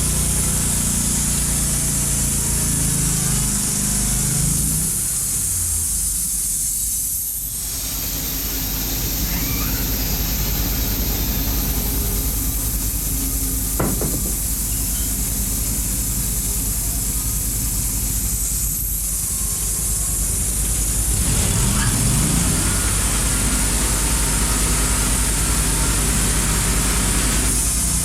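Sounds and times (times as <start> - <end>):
low hum of sawmill: 0.0 - 28.0
saw blade hissing through wood: 5.1 - 19.9.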